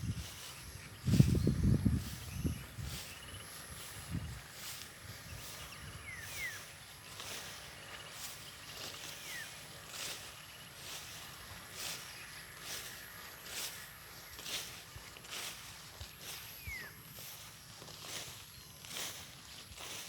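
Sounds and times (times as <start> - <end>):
bird chirps: 0.0 - 11.1
footsteps swishing through grass: 0.0 - 20.0.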